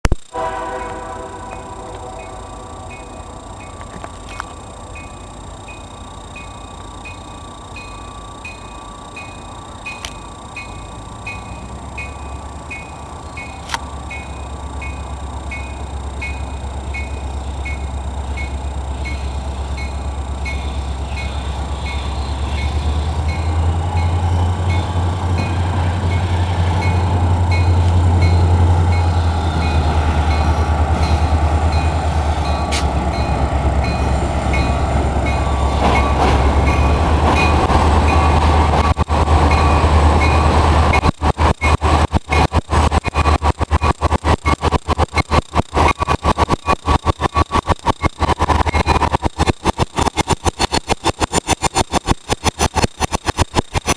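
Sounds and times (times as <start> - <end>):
diesel locomotive engine rumble: 0.0 - 53.9
level-crossing bell ringing: 1.6 - 42.5.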